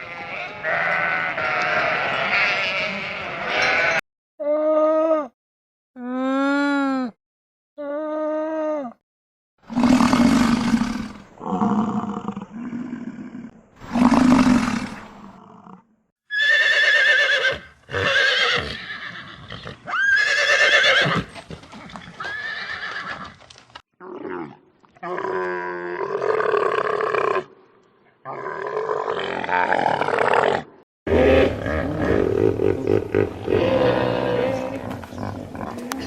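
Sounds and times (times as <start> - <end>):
horse neighing: 0.0 - 4.0, 16.3 - 23.4.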